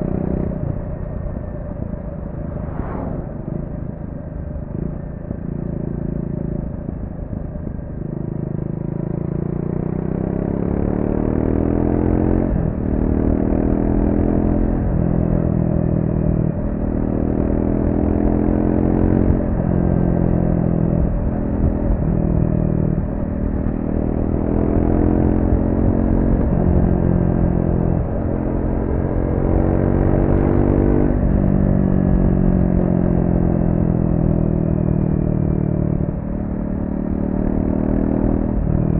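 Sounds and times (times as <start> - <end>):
motorcycle engine revving: 17.1 - 38.9.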